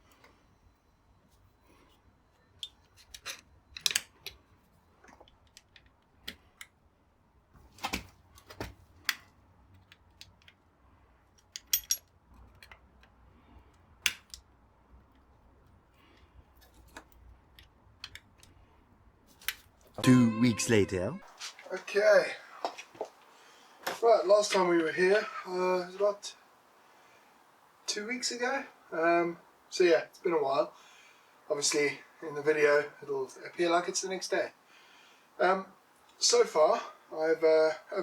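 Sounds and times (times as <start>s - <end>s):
metal tools clicking and clinking: 11.4s - 12.1s.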